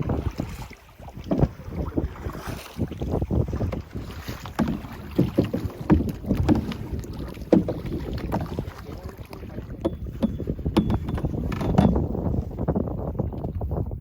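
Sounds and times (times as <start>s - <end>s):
paddle splashes and knocks: 0.0s - 14.0s
wind buffeting microphone: 0.0s - 14.0s.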